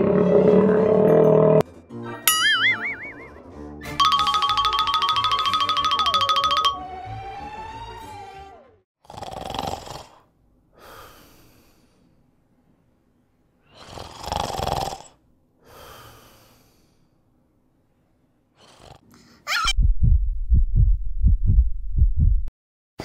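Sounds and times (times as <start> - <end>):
wavering whistle-like tone: 2.3 - 3.4
person snoring: 9.0 - 10.3, 13.8 - 15.2.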